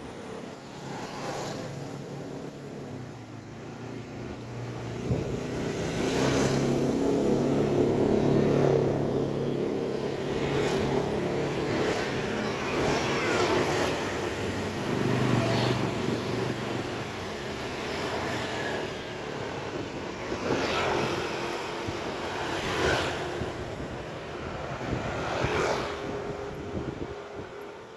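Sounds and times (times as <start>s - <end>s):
outdoor background noise: 0.0s - 27.9s
vehicle engine hum: 1.7s - 25.1s
vehicle passing: 3.8s - 19.0s.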